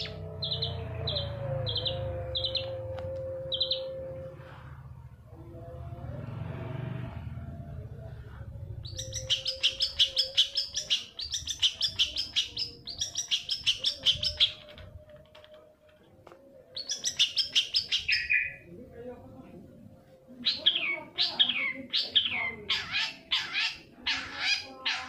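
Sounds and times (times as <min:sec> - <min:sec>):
bird chattering song: 0:00.0 - 0:02.7, 0:08.8 - 0:14.6, 0:16.8 - 0:18.6, 0:20.4 - 0:25.0.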